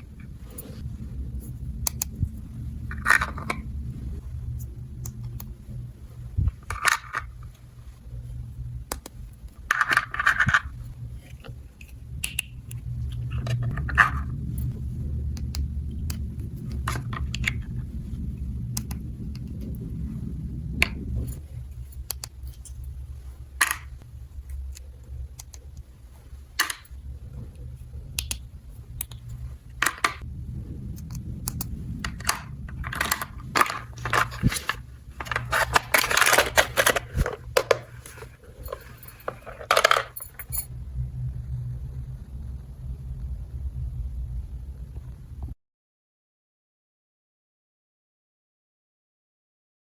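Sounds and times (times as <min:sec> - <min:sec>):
steady low hum: 0:00.0 - 0:45.6
plastic toy pieces clattering: 0:32.1 - 0:40.6.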